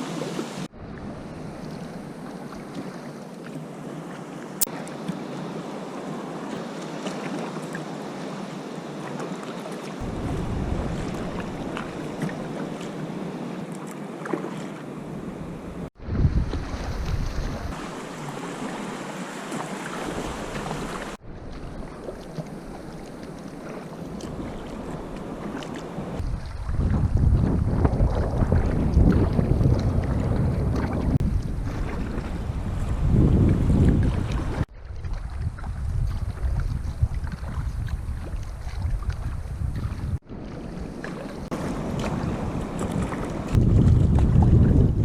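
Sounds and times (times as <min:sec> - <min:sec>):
water splashing around a kayak: 0:00.0 - 0:45.0
wind buffeting microphone: 0:10.0 - 0:13.6, 0:15.0 - 0:17.8, 0:20.0 - 0:45.0.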